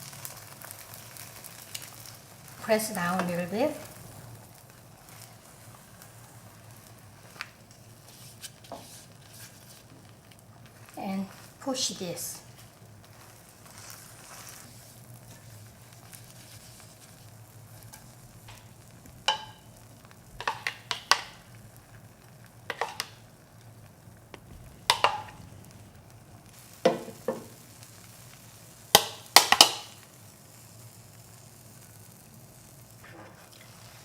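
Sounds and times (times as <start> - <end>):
egg sizzling: 0.0 - 34.0
utensil scraping and tapping pan: 8.1 - 9.9, 17.9 - 19.7, 20.4 - 21.4, 22.7 - 23.2, 24.3 - 25.4.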